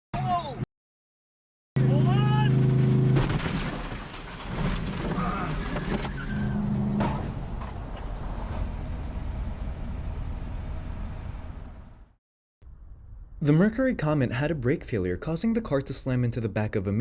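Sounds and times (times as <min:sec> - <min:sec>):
car road and engine rumble: 0:01.8 - 0:12.1.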